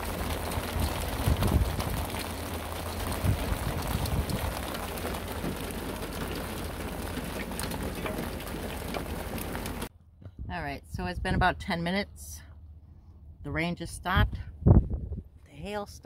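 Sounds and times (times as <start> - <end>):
rain and hail on a roof: 0.0 - 9.9
low steady rumble: 0.0 - 16.0.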